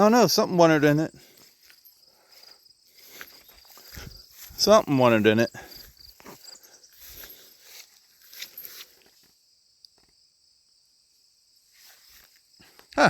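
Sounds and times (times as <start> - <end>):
insects chirring: 0.0 - 13.0
soft rustles: 1.2 - 9.4, 11.7 - 12.8.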